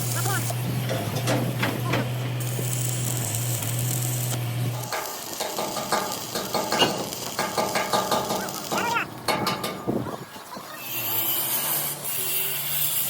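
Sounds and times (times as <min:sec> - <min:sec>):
welding arc crackling: 0:00.0 - 0:10.0, 0:11.0 - 0:13.0
welding machine hum: 0:00.0 - 0:10.0
metallic clicks and knocks: 0:04.8 - 0:09.9.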